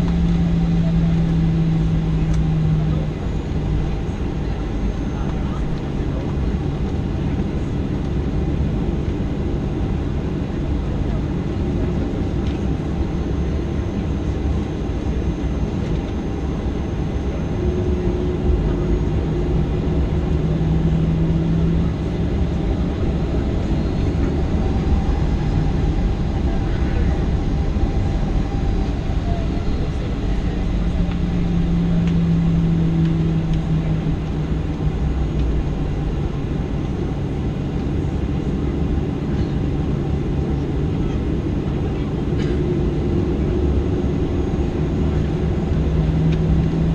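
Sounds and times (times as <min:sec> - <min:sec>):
jet engines running: 0:00.0 - 0:46.9
low hum: 0:10.6 - 0:46.9
low rumble: 0:16.0 - 0:46.9.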